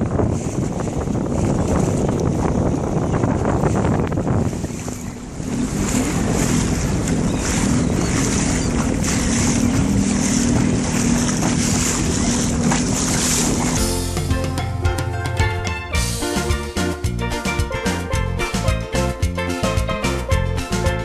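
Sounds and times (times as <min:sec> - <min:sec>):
wind buffeting microphone: 0:00.0 - 0:14.2
jet ski engine running: 0:00.0 - 0:21.0
water rushing: 0:00.0 - 0:21.0.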